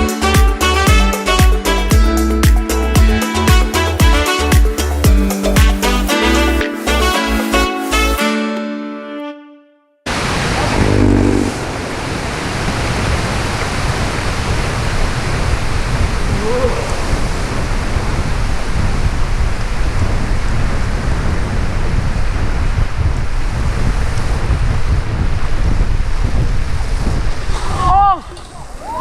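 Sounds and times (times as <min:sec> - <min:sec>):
wind rushing over microphone: 0:10.1 - 0:29.0.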